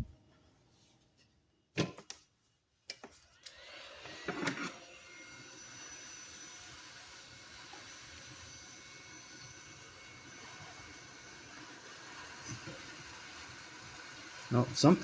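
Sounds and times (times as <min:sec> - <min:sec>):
hot air blower hissing: 0:05.4 - 0:15.0.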